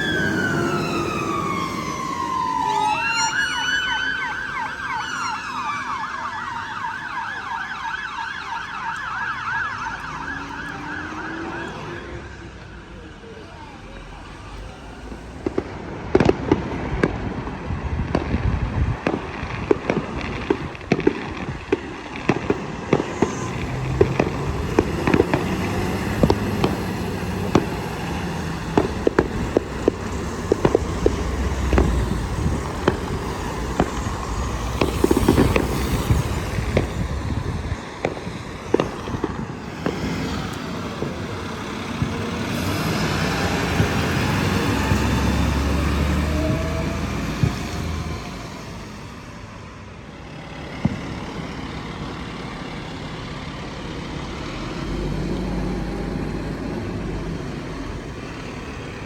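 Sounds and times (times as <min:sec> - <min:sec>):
fireworks banging and crackling: 0:00.0 - 0:59.0
steady low rumble: 0:22.6 - 0:41.7.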